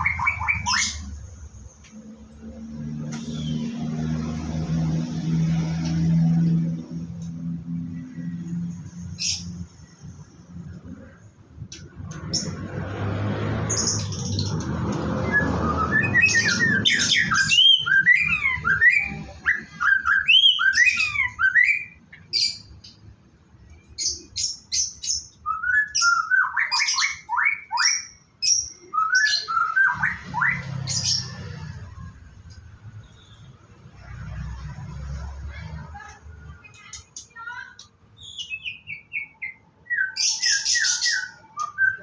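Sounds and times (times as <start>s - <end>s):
songbird whistling phrases: 15.2s - 22.6s, 24.1s - 31.4s, 38.2s - 42.0s.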